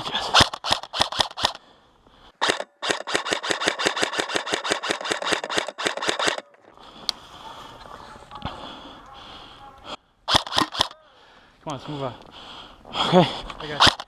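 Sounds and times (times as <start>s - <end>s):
airsoft rifle firing: 0.3s - 1.6s, 2.4s - 6.4s, 10.3s - 11.0s, 13.8s - 14.0s.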